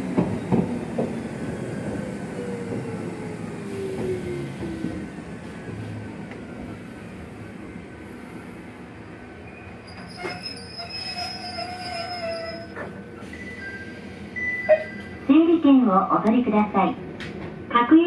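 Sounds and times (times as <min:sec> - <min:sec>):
train rumbling on rails: 0:00.0 - 0:18.0
metallic wheel squeal: 0:09.5 - 0:12.9.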